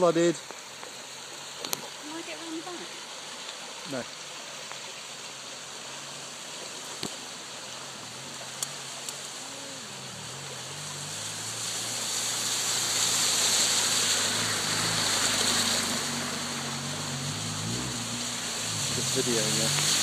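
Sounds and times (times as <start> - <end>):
floodwater rushing: 0.0 - 20.0
vehicle splashing through water: 0.0 - 20.0
low vehicle engine: 5.3 - 20.0.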